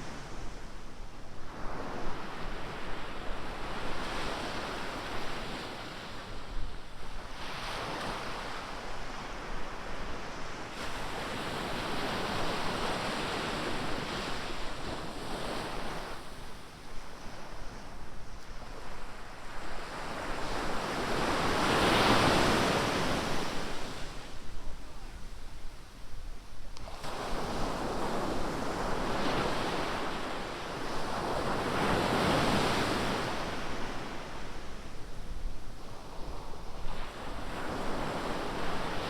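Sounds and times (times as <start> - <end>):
ocean surf breaking on beach: 18.8 - 25.2.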